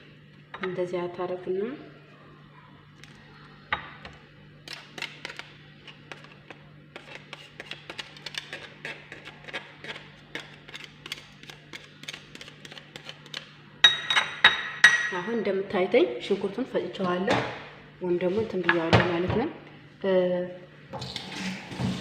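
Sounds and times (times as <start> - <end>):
steady low hum: 0.0 - 22.0
onion scraping on a grater: 6.9 - 13.4.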